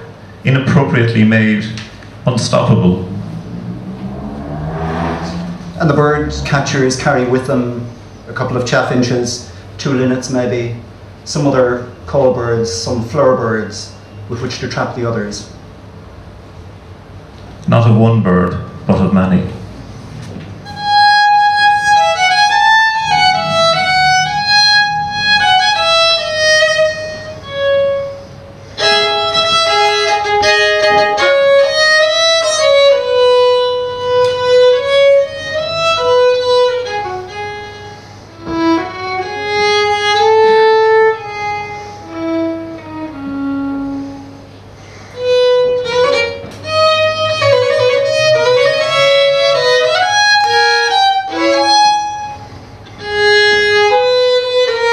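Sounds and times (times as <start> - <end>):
solo violin melody: 20.6 - 44.5, 45.2 - 54.9.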